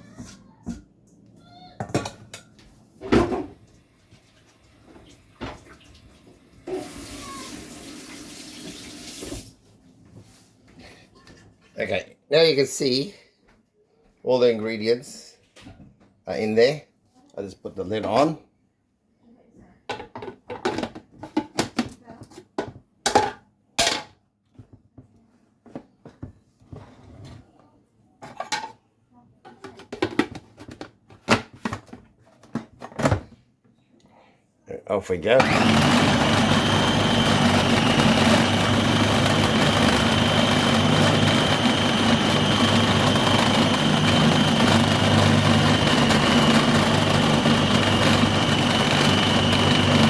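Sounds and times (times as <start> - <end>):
kitchen tap running: 3.6 - 9.6
items knocking: 29.5 - 33.3.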